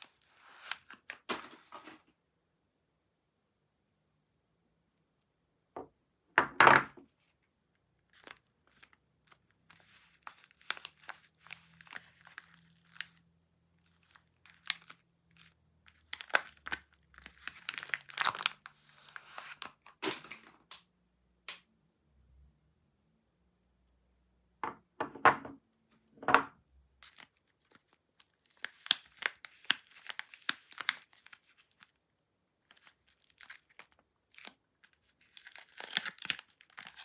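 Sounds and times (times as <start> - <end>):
packaging tearing and crinkling: 8.1 - 13.2, 13.9 - 20.4, 27.0 - 31.9, 32.7 - 37.0.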